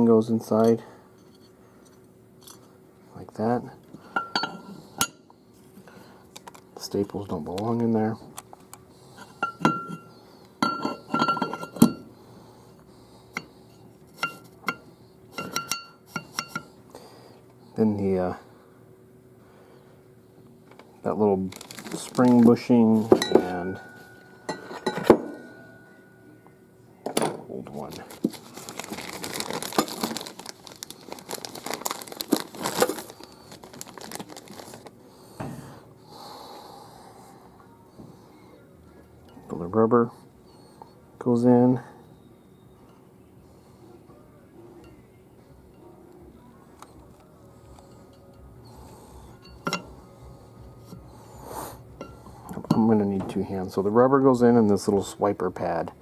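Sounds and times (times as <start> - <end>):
packaging crinkling and rustling: 21.1 - 23.6, 27.8 - 35.0
small metal parts clinking: 49.4 - 49.9.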